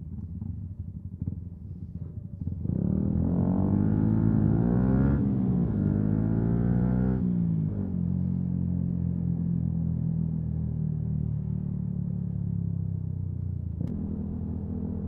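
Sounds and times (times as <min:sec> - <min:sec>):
motorcycle engine running: 0:00.0 - 0:04.4, 0:13.4 - 0:15.0.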